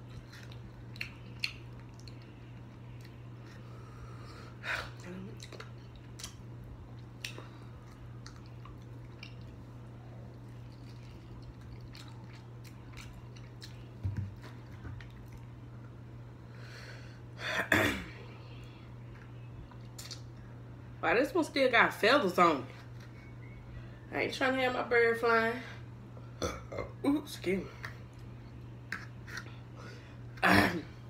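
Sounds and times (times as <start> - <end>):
person chewing and biting: 0.0 - 3.6, 5.4 - 9.7, 10.3 - 15.5
low hum: 0.0 - 31.0.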